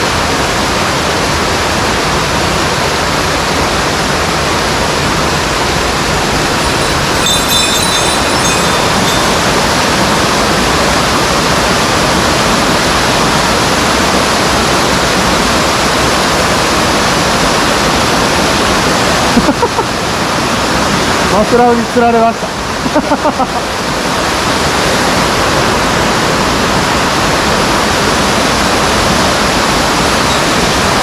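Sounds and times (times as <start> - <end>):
thin high-pitched whine: 5.6 - 11.0.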